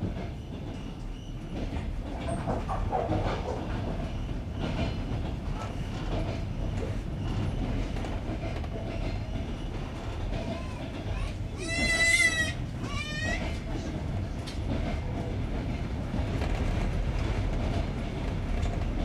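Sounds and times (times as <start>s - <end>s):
train wheels rumbling: 0.0s - 19.0s
wheels clacking on rail joints: 0.0s - 19.0s.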